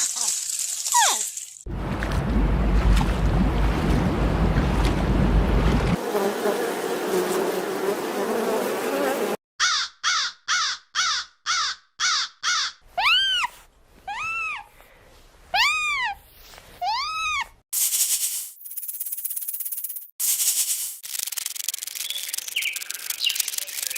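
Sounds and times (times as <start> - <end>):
steady rushing noise: 1.7 - 6.0.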